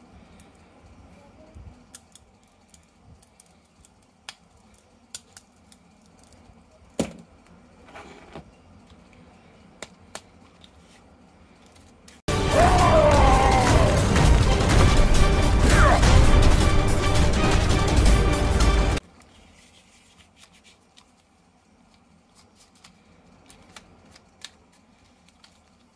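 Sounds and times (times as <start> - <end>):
clicks of small hard objects: 1.5 - 6.5
rustling: 19.0 - 25.9.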